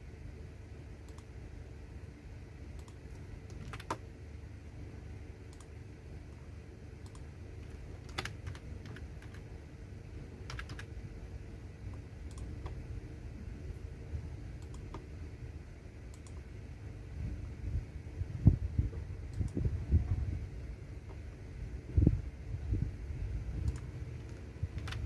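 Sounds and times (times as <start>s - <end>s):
steady low hum: 0.0s - 25.0s
keyboard key clicks: 2.8s - 4.0s, 23.6s - 25.0s.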